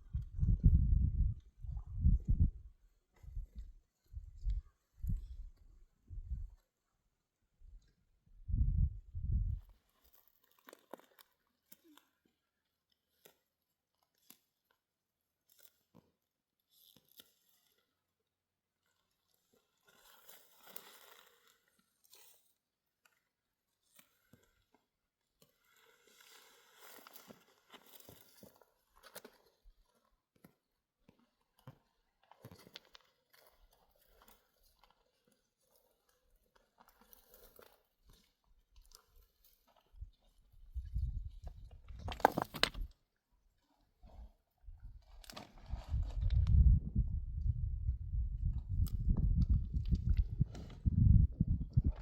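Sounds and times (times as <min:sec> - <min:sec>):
faint small clicks and crackles: 0:09.7 - 0:18.0, 0:18.8 - 0:40.5
faint clicks and crackles: 0:10.0 - 0:12.3, 0:26.8 - 0:43.0
soft rustle: 0:43.6 - 0:46.6.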